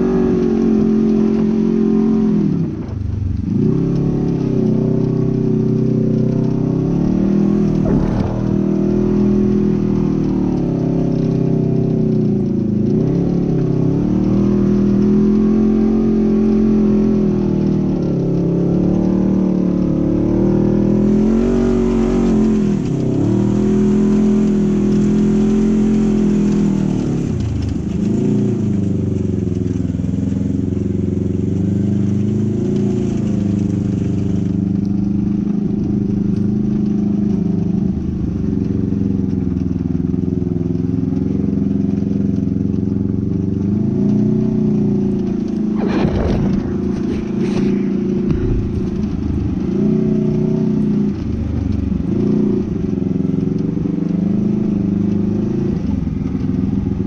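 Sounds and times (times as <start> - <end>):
engine revving under load: 0.0 - 12.1, 43.6 - 57.0.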